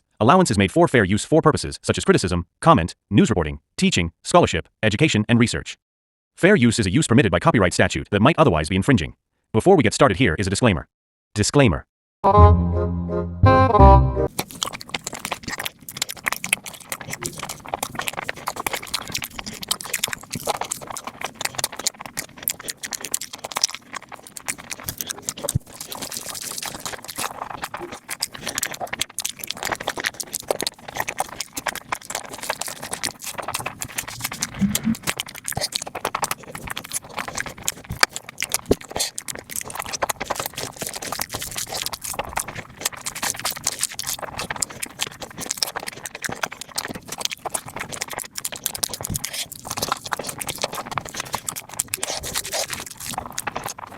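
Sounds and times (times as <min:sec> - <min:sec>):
people chewing and crunching food: 0:14.0 - 0:53.9.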